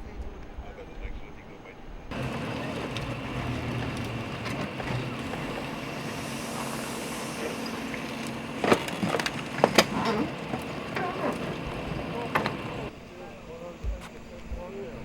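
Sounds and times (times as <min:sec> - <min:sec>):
road traffic hum: 0:02.1 - 0:12.9.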